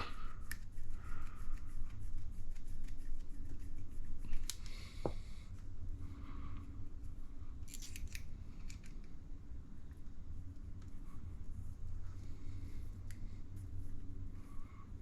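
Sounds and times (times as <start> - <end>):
steady low hum: 0.0 - 15.0
small parts clicking by hand: 7.6 - 9.2.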